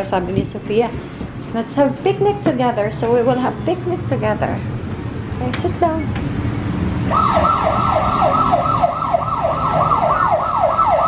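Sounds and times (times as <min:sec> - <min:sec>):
electronic siren wail: 0:07.1 - 0:11.0.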